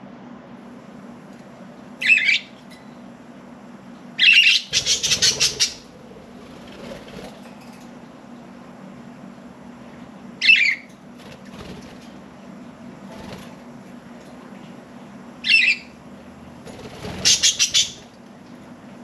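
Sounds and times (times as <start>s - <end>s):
budgerigars chirping: 2.0s - 2.5s, 4.2s - 5.9s, 15.4s - 15.9s, 17.2s - 18.0s
wing flaps: 4.7s - 7.6s, 11.1s - 12.3s, 13.0s - 13.8s, 16.6s - 18.0s.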